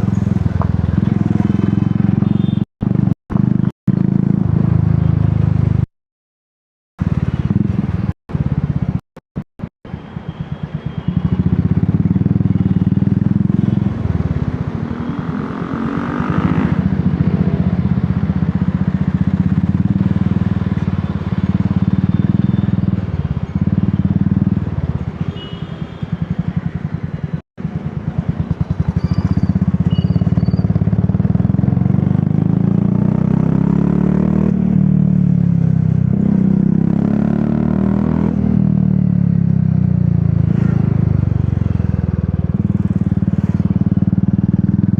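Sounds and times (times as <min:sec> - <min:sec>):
motorcycle engine accelerating: 0:00.0 - 0:05.9, 0:07.0 - 0:09.0, 0:11.2 - 0:24.8, 0:27.6 - 0:44.9.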